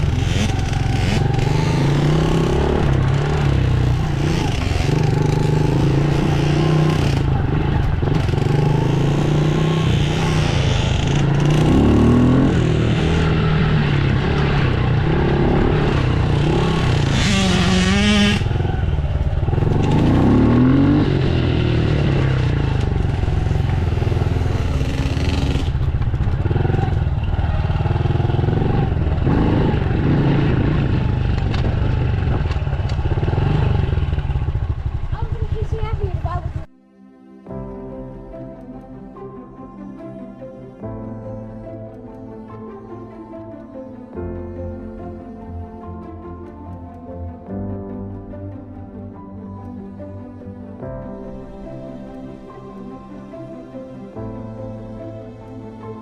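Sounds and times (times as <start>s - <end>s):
dirt bike engine revving: 0.0s - 36.6s.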